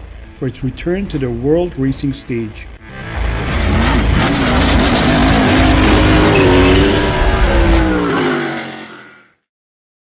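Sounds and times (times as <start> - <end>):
race car engine at high revs: 2.9 - 9.3.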